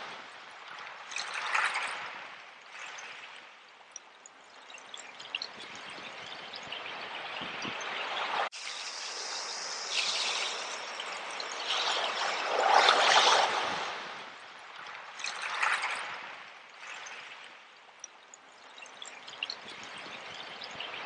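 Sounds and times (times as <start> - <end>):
ocean waves washing in: 6.7 - 17.7.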